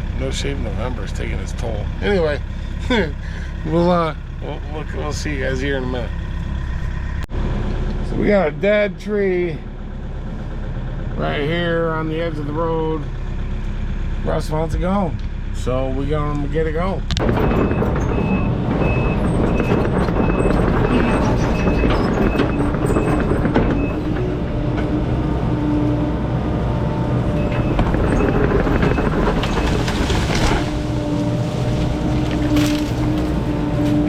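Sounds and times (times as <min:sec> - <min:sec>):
diesel engine running hard: 0:00.0 - 0:34.0
backup alarm beeping: 0:17.4 - 0:24.2, 0:27.3 - 0:30.6.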